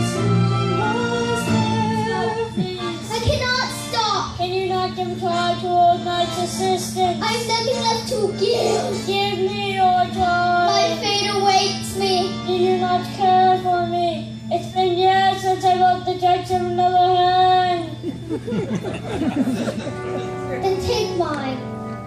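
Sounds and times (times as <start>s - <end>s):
child singing slow melody: 0.0s - 18.0s
musical accompaniment: 0.0s - 22.0s
steady low hum: 0.0s - 22.0s.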